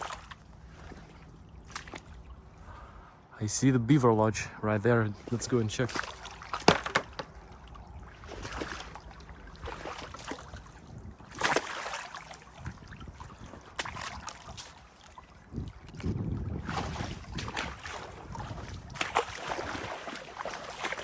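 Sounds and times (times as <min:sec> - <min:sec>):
wading through shallow water: 0:00.0 - 0:03.9, 0:04.7 - 0:21.0
wind on microphone: 0:07.3 - 0:11.5, 0:12.4 - 0:20.2.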